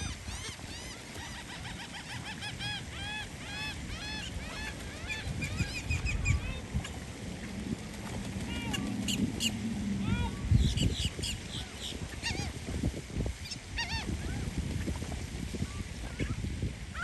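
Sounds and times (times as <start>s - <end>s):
flock of birds chirping: 0.0s - 7.6s, 8.3s - 12.6s.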